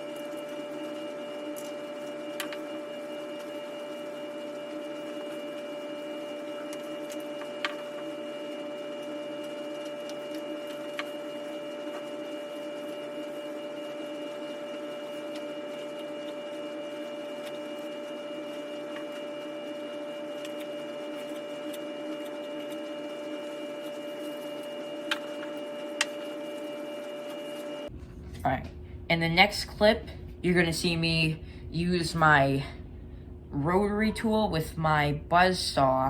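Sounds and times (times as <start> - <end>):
small electric motor whining: 0.0 - 27.9.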